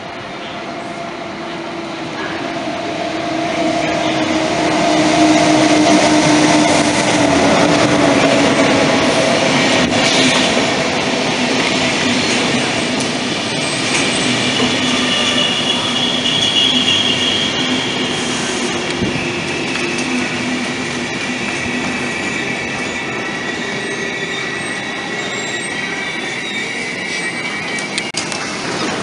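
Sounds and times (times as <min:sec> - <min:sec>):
train coaches rumbling: 0:00.0 - 0:29.0
high-pitched brake squeal: 0:13.6 - 0:18.6, 0:21.8 - 0:28.1.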